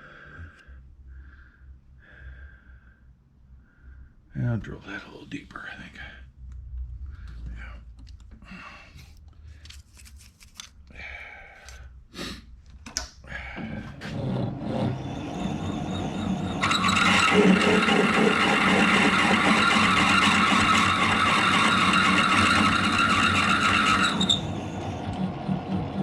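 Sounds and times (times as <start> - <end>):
machine spindle running: 13.6 - 26.0
drill squealing in metal: 14.0 - 25.2.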